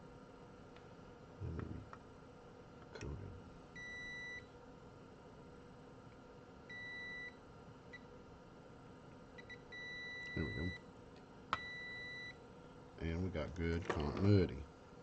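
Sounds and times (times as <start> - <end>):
multimeter high beeps: 3.8 - 4.5, 6.7 - 8.0, 9.4 - 10.8, 11.6 - 12.4.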